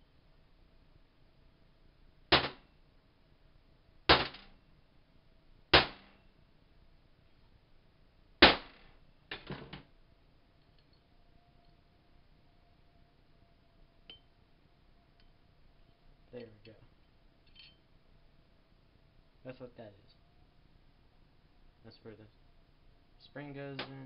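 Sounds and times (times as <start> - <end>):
sharp knocks on air rifle: 2.3 - 2.6, 5.8 - 6.2.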